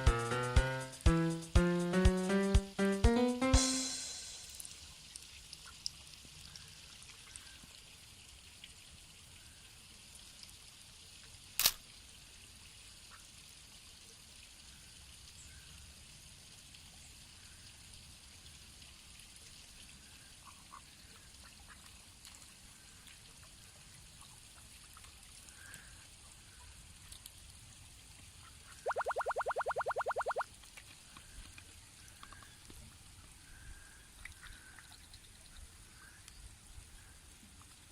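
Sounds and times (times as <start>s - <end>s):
ducks splashing in water: 28.4s - 32.4s.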